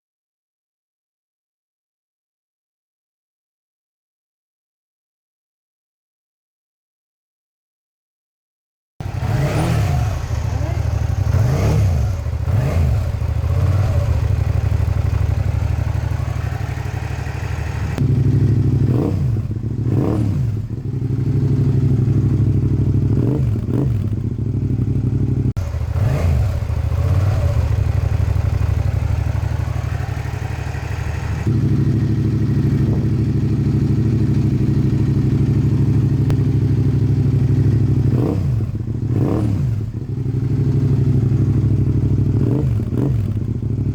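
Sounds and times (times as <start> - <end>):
motorcycle engine idling and revving: 9.0 - 43.9.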